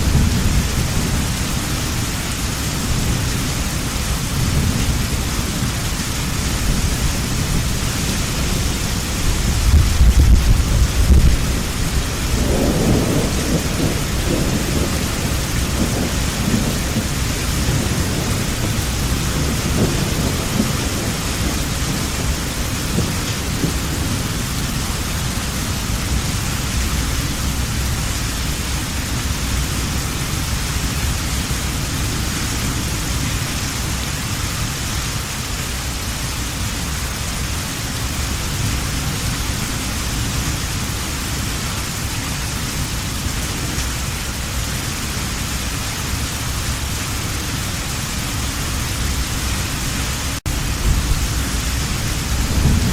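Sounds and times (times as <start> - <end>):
low rolling thunder: 0.0 - 34.0, 47.9 - 52.9
heavy rain: 0.0 - 52.9.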